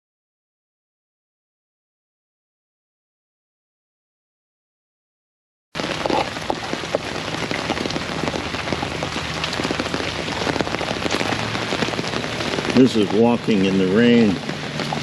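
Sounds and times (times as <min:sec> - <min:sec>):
heavy rain on an umbrella: 0:05.8 - 0:15.0.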